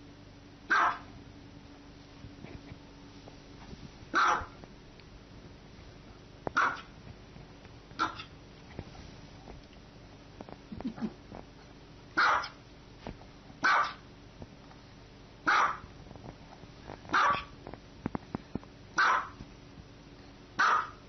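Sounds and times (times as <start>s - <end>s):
small dog barking: 0.7s - 1.2s, 4.1s - 4.6s, 6.5s - 7.0s, 8.0s - 8.3s, 12.2s - 12.6s, 13.6s - 14.0s, 15.4s - 15.9s, 17.1s - 17.6s, 19.0s - 19.4s, 20.6s - 21.0s.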